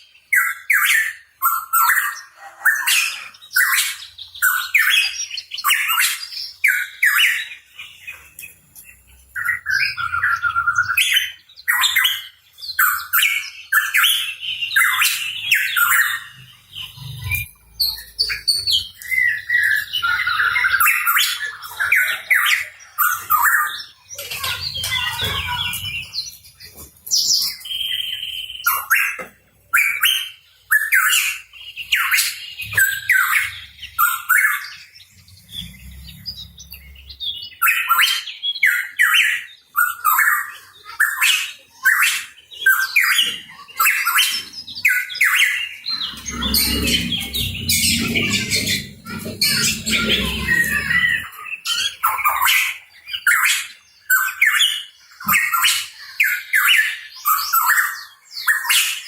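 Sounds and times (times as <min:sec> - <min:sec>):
bird chirps and squawks: 0:12.8 - 0:59.0.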